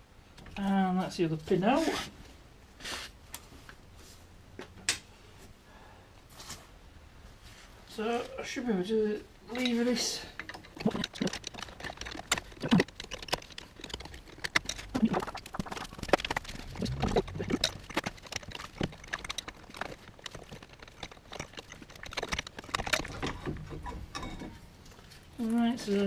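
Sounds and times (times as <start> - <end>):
metallic clicks and scrapes: 9.5 - 24.6.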